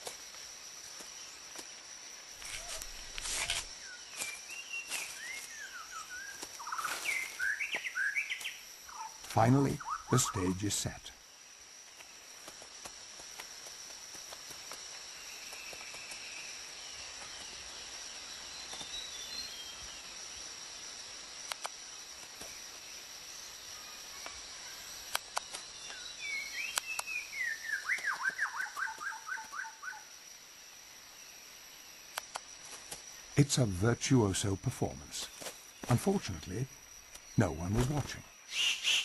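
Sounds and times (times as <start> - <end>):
high insect drone: 0.0 - 39.0
sharp clicks: 21.5 - 21.8, 32.1 - 32.5
bird calling falling notes: 25.9 - 30.0.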